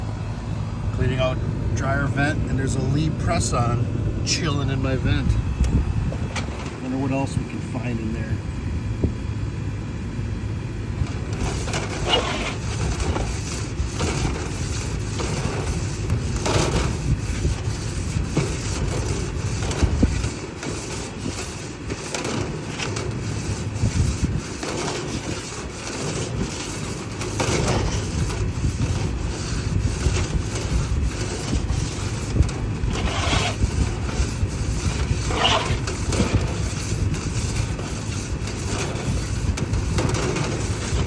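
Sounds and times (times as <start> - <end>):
low rumble: 0.0 - 7.6
scraping debris from dryer vent: 10.9 - 41.0.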